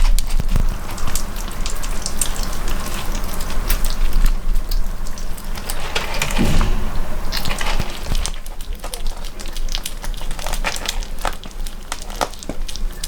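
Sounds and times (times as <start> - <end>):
kittens chewing and lapping: 0.0 - 4.2, 10.4 - 13.0
low thump: 5.8 - 8.4.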